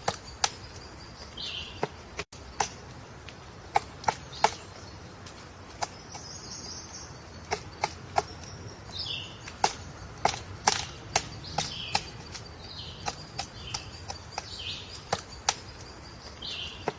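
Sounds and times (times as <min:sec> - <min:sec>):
woodpecker pecking wood: 0:00.0 - 0:16.9
high bird chirps: 0:05.8 - 0:16.9.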